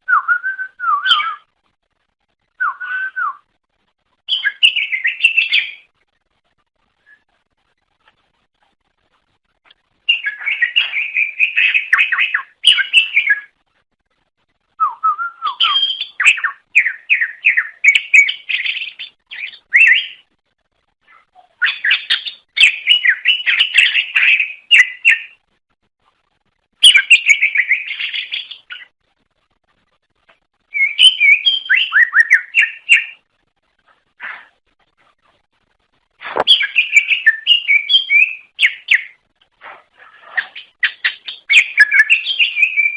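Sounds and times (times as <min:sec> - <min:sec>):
bird singing rapid chirps: 0:00.1 - 0:01.5, 0:04.3 - 0:05.9, 0:10.0 - 0:13.6, 0:14.8 - 0:20.3, 0:21.1 - 0:25.4, 0:26.8 - 0:28.9, 0:30.7 - 0:33.3, 0:36.3 - 0:39.3, 0:40.2 - 0:42.9.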